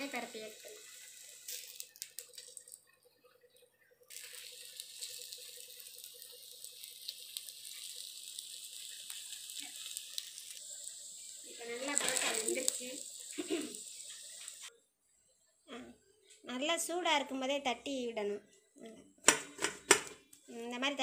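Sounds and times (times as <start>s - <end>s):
flatbread sizzling in oil: 0.0s - 14.7s.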